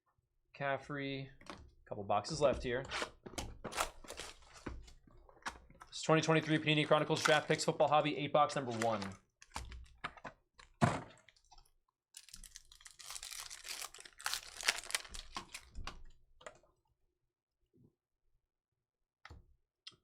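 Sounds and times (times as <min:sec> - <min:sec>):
plastic packaging crinkling and tearing: 0:03.7 - 0:04.7, 0:06.5 - 0:07.7, 0:12.2 - 0:15.8.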